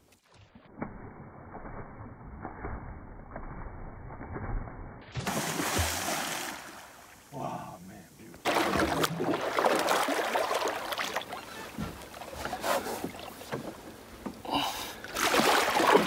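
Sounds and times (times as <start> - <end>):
water splashing against boat: 5.2 - 7.2, 8.4 - 16.0.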